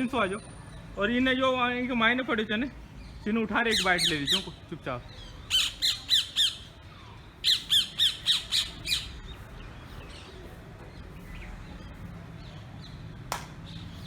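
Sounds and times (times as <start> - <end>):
parrot squawking: 3.7 - 4.5, 5.2 - 6.7, 7.4 - 9.2.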